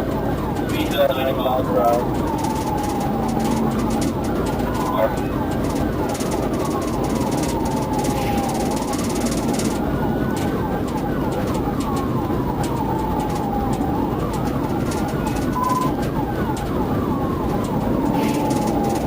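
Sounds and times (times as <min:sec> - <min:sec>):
engine and road noise: 0:00.0 - 0:19.0
police siren wailing: 0:00.0 - 0:19.0.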